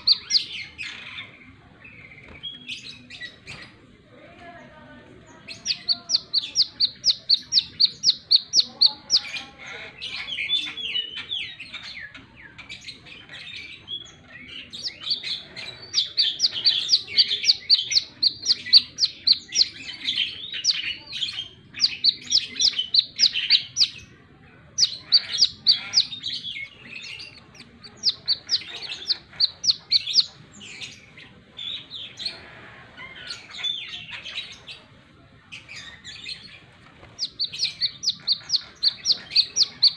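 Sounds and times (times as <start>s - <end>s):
sunbird singing: 0.0s - 3.5s, 5.3s - 32.4s, 35.5s - 39.9s.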